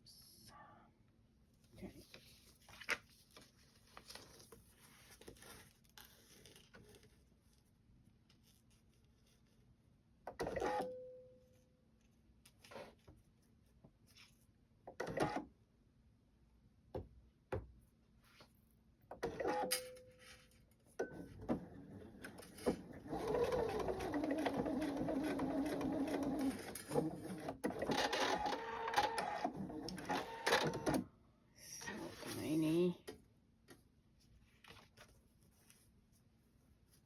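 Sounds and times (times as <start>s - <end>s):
sewing machine running: 22.3s - 30.6s.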